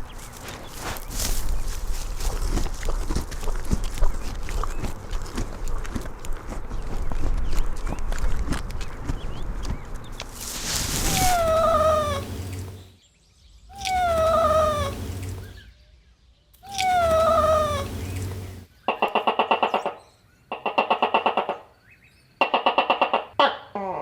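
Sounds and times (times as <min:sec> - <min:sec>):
horse calls: 0:11.0 - 0:12.8, 0:13.8 - 0:15.6, 0:16.6 - 0:18.7
horse whinnying: 0:11.1 - 0:12.8, 0:13.8 - 0:15.6, 0:16.6 - 0:18.7.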